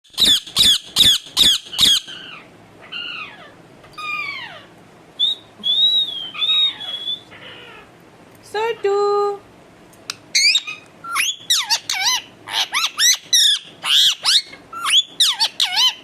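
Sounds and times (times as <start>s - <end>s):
parrot squawking: 0.1s - 4.8s, 6.3s - 7.9s, 10.3s - 16.0s
parrot whistling: 5.2s - 7.7s, 10.3s - 16.0s.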